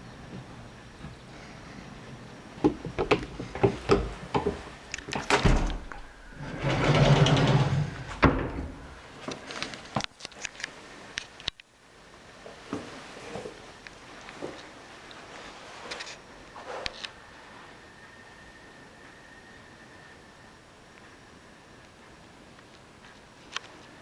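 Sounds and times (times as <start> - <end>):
sliding rumbling sound: 3.2 - 9.2.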